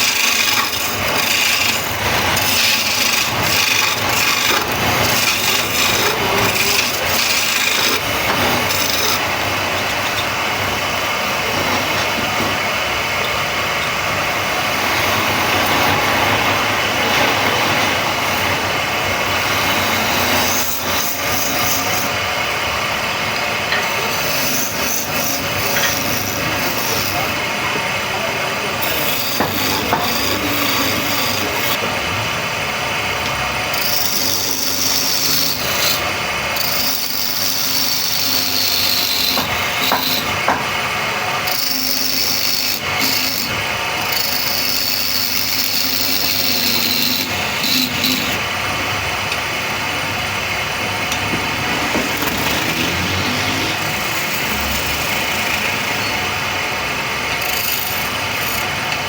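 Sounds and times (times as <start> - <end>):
cutting tool scraping spinning wood: 0.0 - 10.4, 28.8 - 31.8, 33.7 - 40.8, 41.5 - 48.4, 51.2 - 56.2
lathe motor hum: 0.0 - 59.0.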